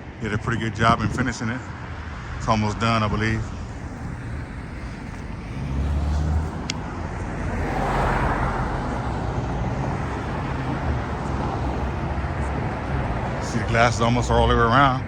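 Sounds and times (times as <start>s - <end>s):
traffic engine rumble: 0.0s - 15.0s
vehicle passing: 0.0s - 15.0s.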